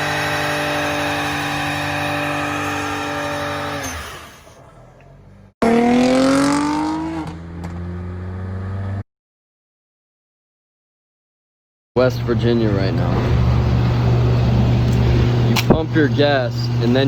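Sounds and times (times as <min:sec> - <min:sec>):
engine revving up: 0:00.0 - 0:09.0.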